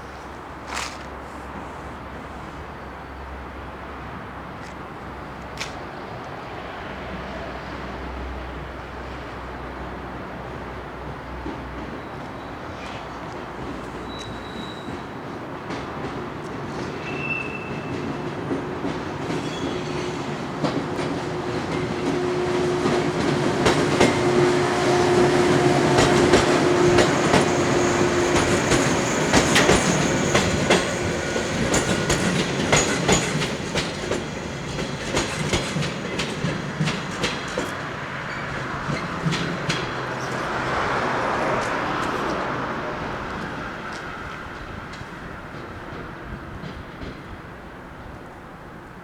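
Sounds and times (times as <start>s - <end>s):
wheels clicking over rail joints: 12.8s - 49.0s
electric train running: 20.2s - 43.7s.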